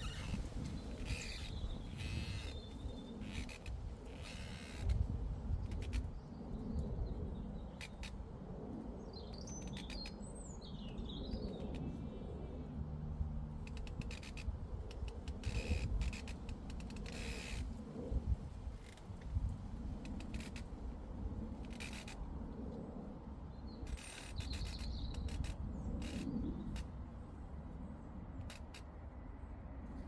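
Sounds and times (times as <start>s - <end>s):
breeze rumble on microphone: 0.0s - 7.5s.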